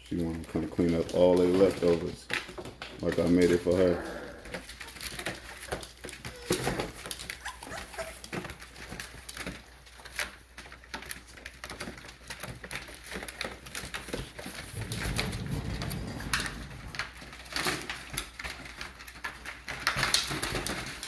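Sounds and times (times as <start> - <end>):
dogs eating and licking: 0.0 - 21.0
puppies whimpering: 4.1 - 9.0.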